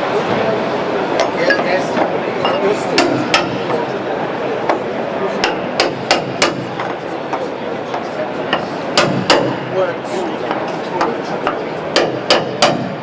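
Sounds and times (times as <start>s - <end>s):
hammer striking car body panels: 3.0s - 3.8s, 5.4s - 6.9s, 8.6s - 9.6s, 11.9s - 13.0s.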